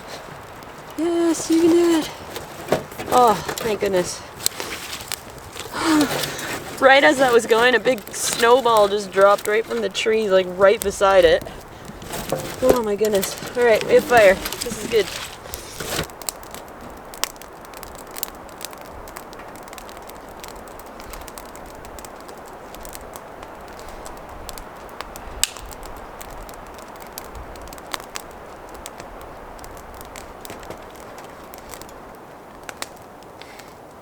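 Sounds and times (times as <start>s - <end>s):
campfire crackling and popping: 0.0s - 34.0s.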